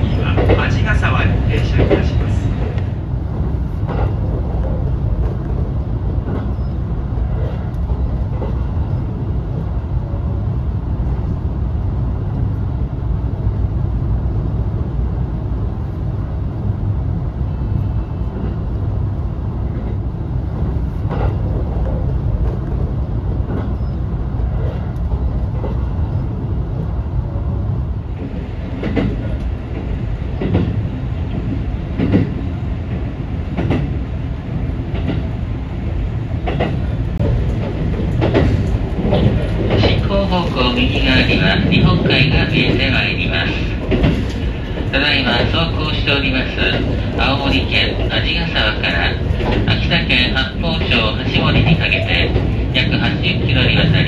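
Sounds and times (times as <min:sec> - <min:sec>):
train interior rumble: 0:00.0 - 0:54.0
wheels clacking over rail joints: 0:36.4 - 0:45.6, 0:48.9 - 0:54.0.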